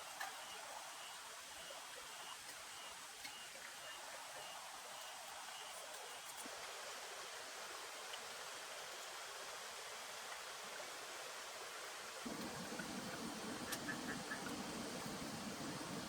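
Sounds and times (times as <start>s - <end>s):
rain hissing: 12.2s - 16.0s.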